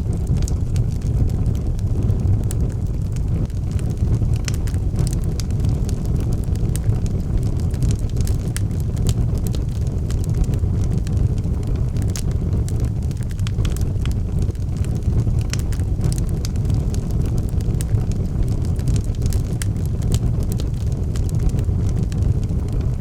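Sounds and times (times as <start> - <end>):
fire flames rumbling: 0.0 - 23.0
logs crackling and popping: 0.0 - 23.0.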